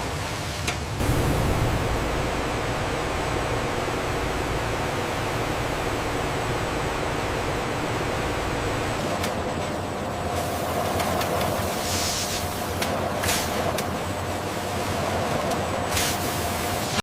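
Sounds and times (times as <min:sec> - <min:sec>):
machinery rushing hiss: 0:00.9 - 0:09.0, 0:11.6 - 0:13.6
faint high whine: 0:00.9 - 0:10.8.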